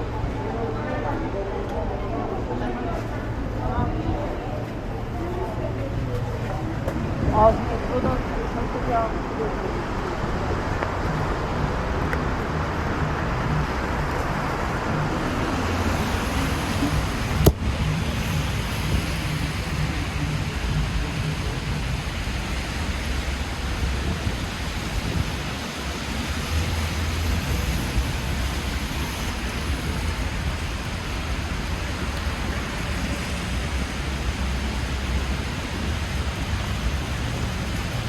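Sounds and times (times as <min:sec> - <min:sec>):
rain hissing on street: 0:00.0 - 0:38.0
traffic on wet road: 0:00.0 - 0:38.0.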